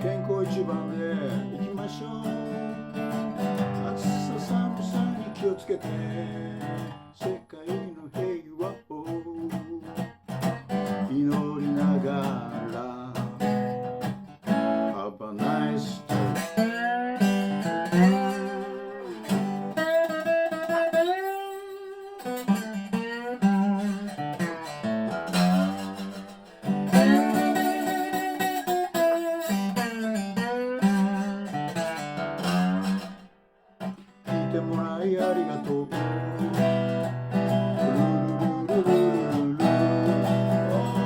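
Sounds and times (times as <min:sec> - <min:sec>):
slide resonator guitar playing: 0:00.0 - 0:41.0.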